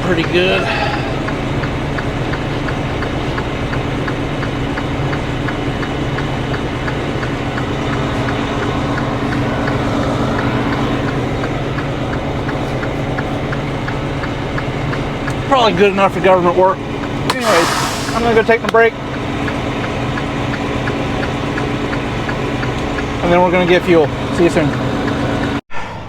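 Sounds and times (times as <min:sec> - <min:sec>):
light ticking: 0:00.0 - 0:25.6
diesel truck engine idling: 0:00.0 - 0:26.0.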